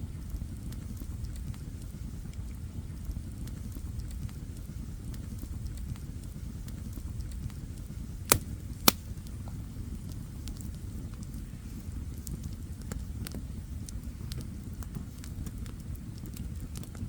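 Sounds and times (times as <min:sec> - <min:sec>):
loud sharp fire pops: 0:08.3 - 0:09.0.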